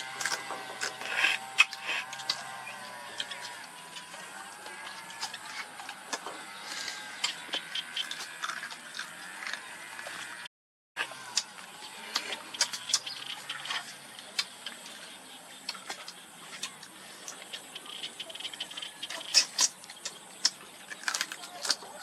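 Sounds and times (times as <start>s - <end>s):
crab shells cracking: 0.0s - 2.5s, 19.2s - 22.0s.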